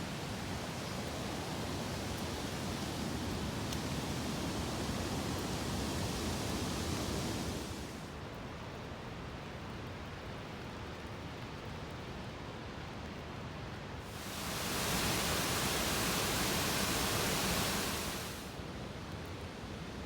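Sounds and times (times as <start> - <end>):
rain hiss: 0.0 - 8.2, 14.0 - 18.8
bright hiss: 14.1 - 18.6.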